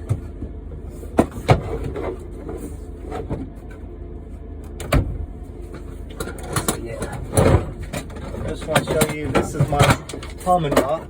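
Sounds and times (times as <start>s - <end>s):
tools and boxes being handled: 1.1s - 3.8s, 5.7s - 11.0s.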